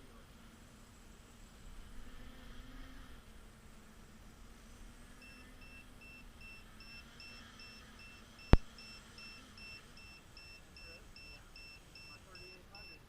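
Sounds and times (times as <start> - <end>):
electronic buzzer beeping rapidly: 5.2 - 13.0.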